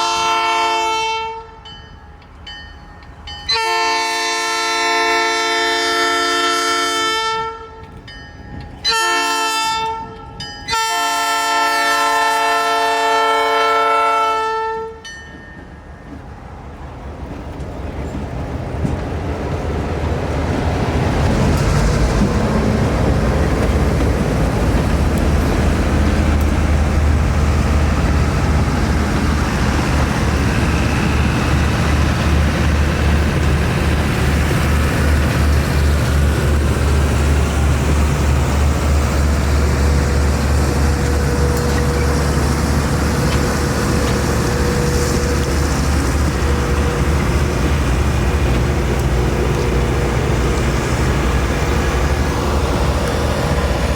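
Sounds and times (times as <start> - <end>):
locomotive air horn: 0.0 - 1.6, 3.5 - 7.9, 8.8 - 15.0
train rumbling past: 0.0 - 53.9.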